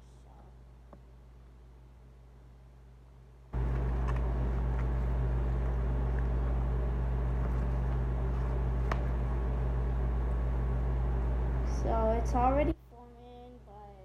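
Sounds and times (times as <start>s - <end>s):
appliance humming: 3.5s - 12.8s.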